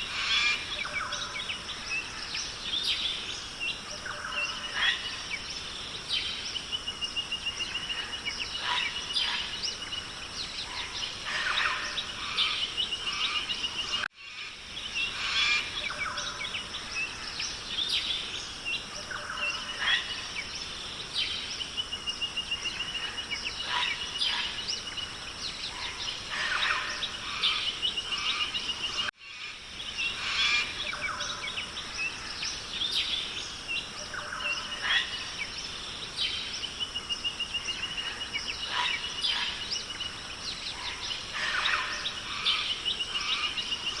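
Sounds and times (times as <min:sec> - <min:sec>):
birds chirping and trilling: 0:00.0 - 0:44.0
steady high hiss: 0:00.0 - 0:44.0.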